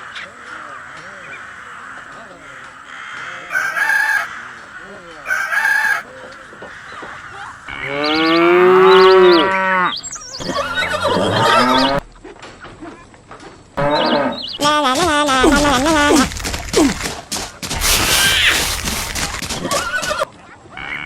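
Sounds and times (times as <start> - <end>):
rooster crowing: 0.0 - 10.0
short harsh sounds: 17.7 - 20.0.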